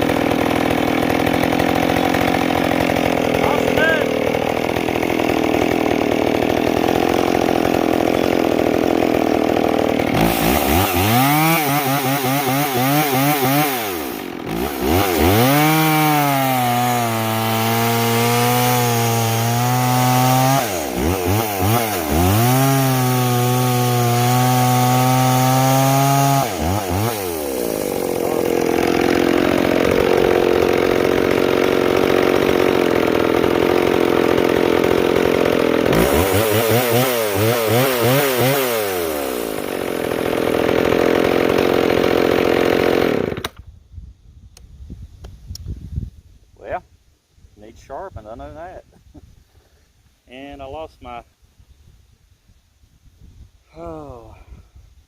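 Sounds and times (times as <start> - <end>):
chainsaw running: 0.0 - 43.6.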